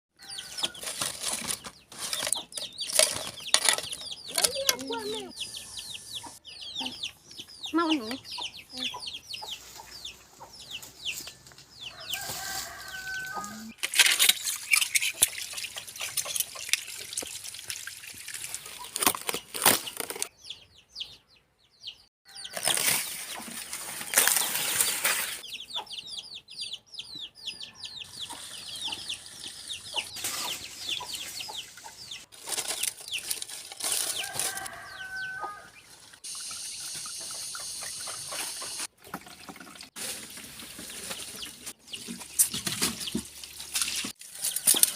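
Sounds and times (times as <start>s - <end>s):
chickens clucking: 0.2s - 13.8s, 25.4s - 43.3s
birds chirping: 1.5s - 13.8s, 18.6s - 23.5s, 24.8s - 33.4s.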